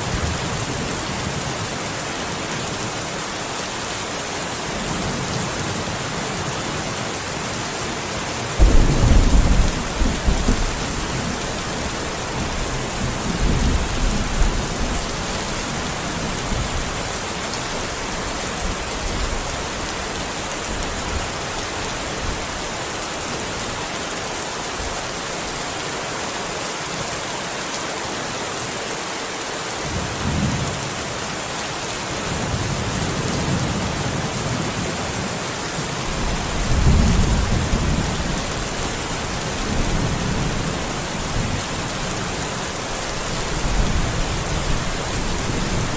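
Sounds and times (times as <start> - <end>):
steady rain: 0.0 - 45.9
thunder crack and rumble: 8.6 - 11.5.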